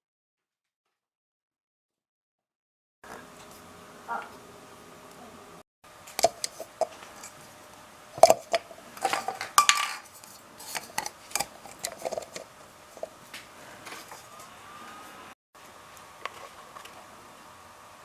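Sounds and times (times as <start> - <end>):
hard objects clinking and scraping: 8.2 - 13.2.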